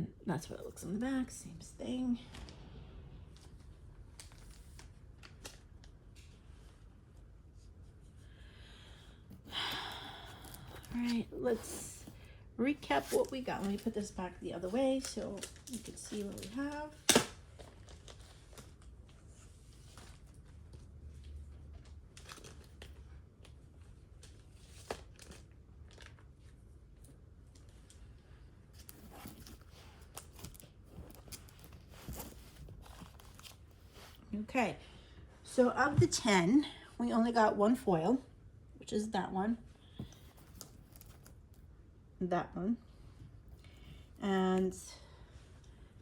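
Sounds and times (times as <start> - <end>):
low room hum: 0.0 - 46.0
rustling of comic books: 1.1 - 34.6, 39.7 - 41.8.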